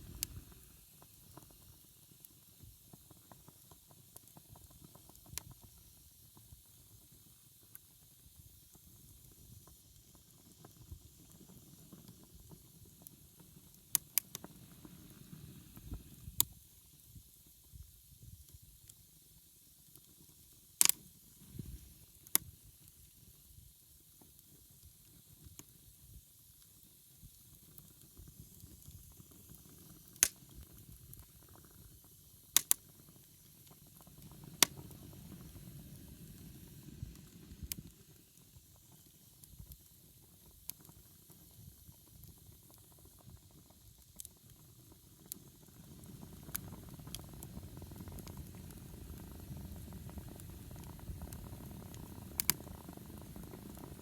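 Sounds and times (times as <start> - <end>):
fire flames rumbling: 0.0 - 1.8, 33.8 - 38.7, 45.0 - 54.0
burning wood crackling pops: 0.0 - 6.6, 8.8 - 16.6, 20.7 - 23.2, 27.2 - 54.0.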